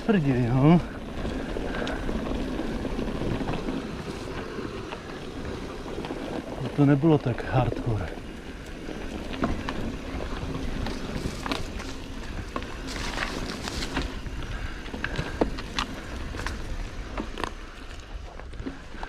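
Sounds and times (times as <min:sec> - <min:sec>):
wind noise on microphone: 0:00.0 - 0:06.8
bike chain and frame rattling: 0:00.0 - 0:19.0
bike tyres rolling on dirt: 0:00.0 - 0:19.0.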